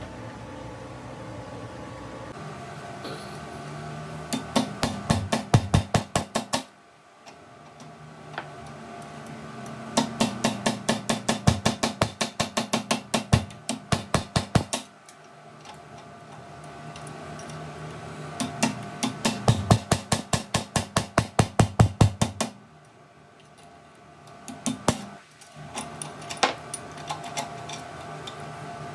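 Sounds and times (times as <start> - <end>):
steady machine hum: 0.0 - 28.9
rapid hammer blows on metal: 4.3 - 6.7, 10.0 - 14.9, 18.4 - 22.6, 24.5 - 25.2.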